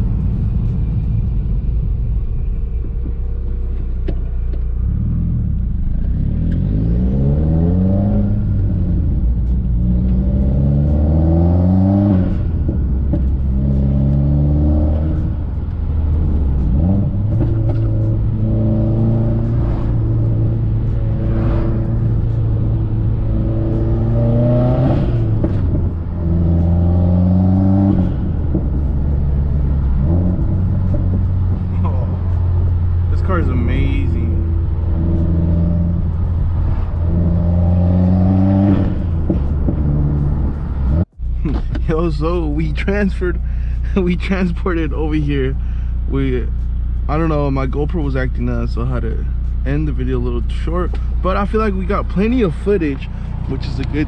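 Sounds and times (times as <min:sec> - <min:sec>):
car engine accelerating hard: 0:04.8 - 0:44.9.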